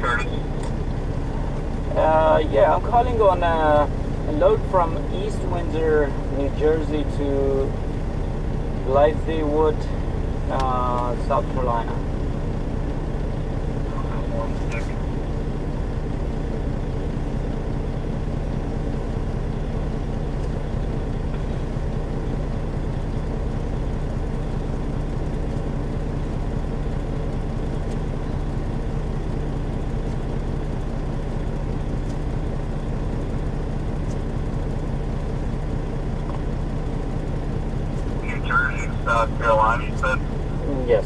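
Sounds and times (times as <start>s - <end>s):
truck engine humming: 0.0s - 41.0s.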